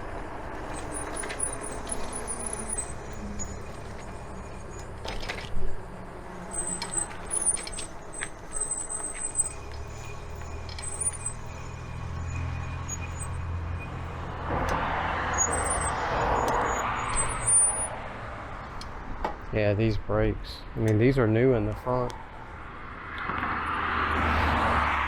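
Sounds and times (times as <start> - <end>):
bike brakes squealing: 0.0 - 18.0
motor vehicle passing: 0.0 - 19.9, 22.1 - 25.0
road and wind noise: 0.0 - 25.0.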